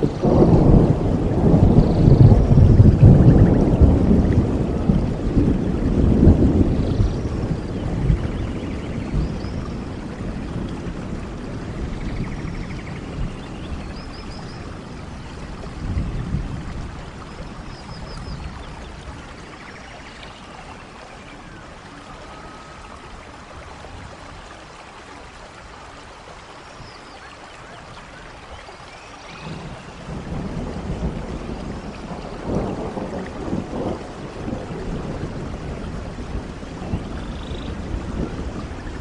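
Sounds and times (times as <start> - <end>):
rolling thunder rumble: 0.0 - 24.5, 29.3 - 39.0
steady rain in forest: 0.0 - 39.0.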